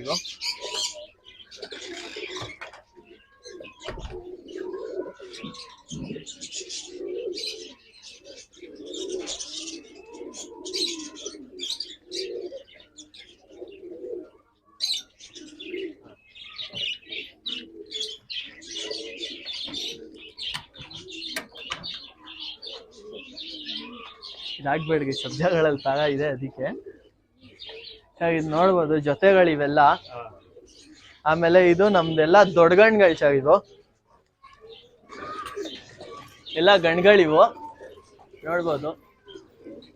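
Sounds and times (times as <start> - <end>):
pigeons cooing: 0.0 - 39.9.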